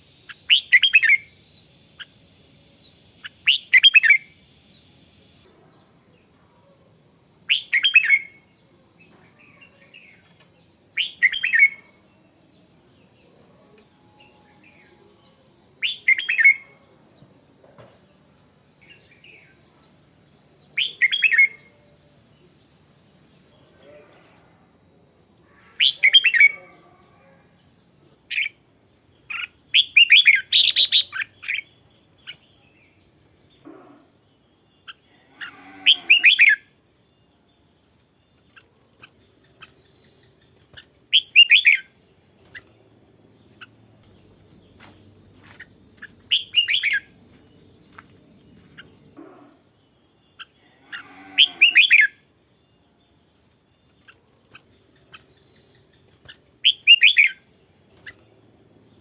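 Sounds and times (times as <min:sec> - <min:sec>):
faint high-pitched whine: 0:00.0 - 0:59.0
bird singing warbled phrases: 0:20.8 - 0:21.7, 0:29.3 - 0:33.0, 0:38.5 - 0:42.8, 0:46.0 - 0:47.1, 0:54.0 - 0:58.2.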